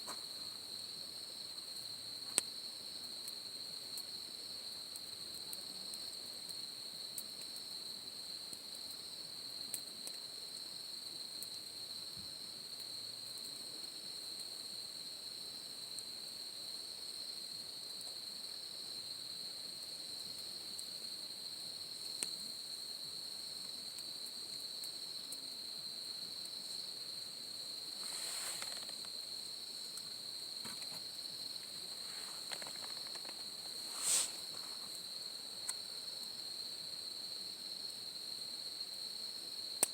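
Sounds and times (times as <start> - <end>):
insects trilling: 0.0 - 39.9
faint clicks: 28.1 - 29.2, 32.2 - 35.0.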